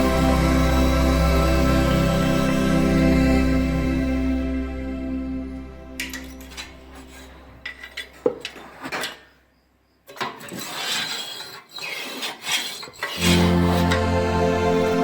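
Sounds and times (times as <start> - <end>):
scraping and rubbing strokes: 6.2 - 9.1, 10.2 - 14.1.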